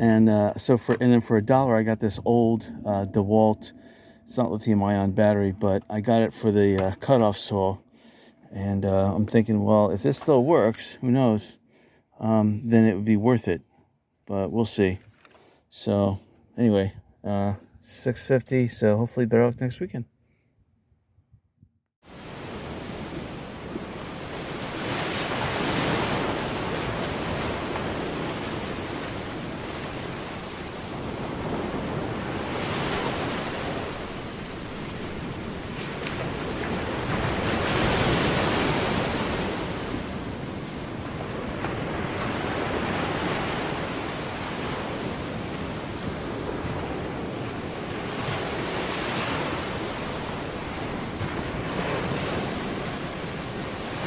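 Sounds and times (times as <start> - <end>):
ocean waves washing onto shore: 22.0 - 54.0.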